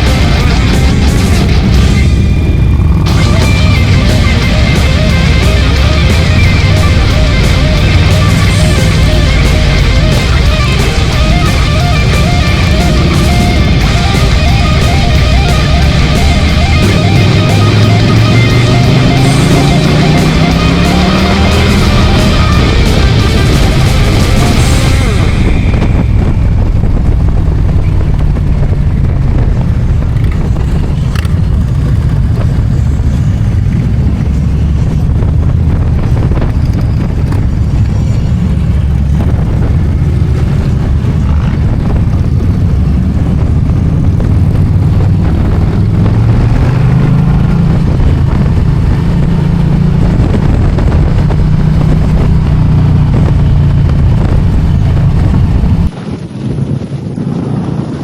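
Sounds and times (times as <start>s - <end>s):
motorcycle engine running: 0.0s - 58.0s
wind on microphone: 22.0s - 58.0s.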